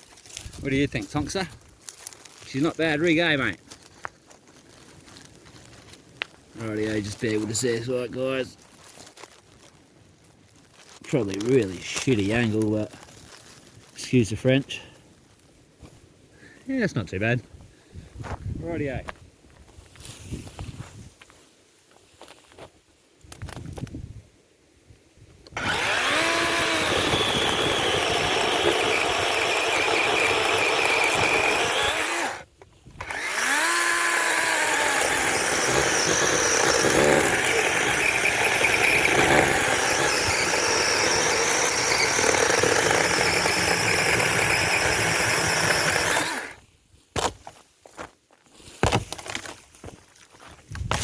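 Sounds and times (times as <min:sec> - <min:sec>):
electric chainsaw cutting log: 0:25.5 - 0:46.6.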